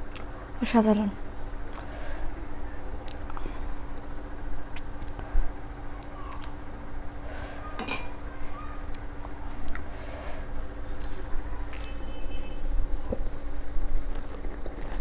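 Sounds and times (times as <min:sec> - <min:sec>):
tableware clinking: 0:07.8 - 0:08.2.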